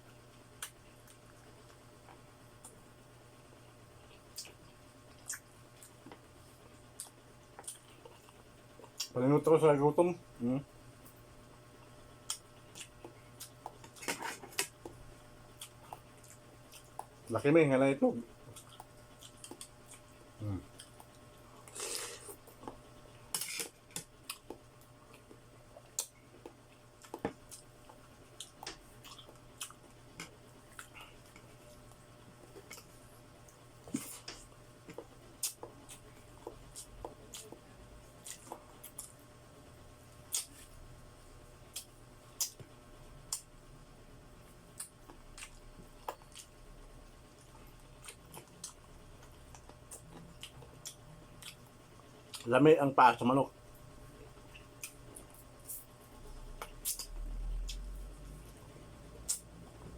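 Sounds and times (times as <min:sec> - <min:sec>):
person chewing wetly: 0:04.0 - 0:09.2, 0:12.2 - 0:17.3, 0:18.4 - 0:39.2, 0:40.1 - 0:40.7, 0:41.7 - 0:42.7, 0:44.5 - 0:52.5, 0:54.1 - 0:59.6
wet chewing and sucking: 0:18.5 - 0:31.6, 0:40.3 - 0:40.7, 0:56.6 - 0:58.6, 0:59.2 - 0:59.6.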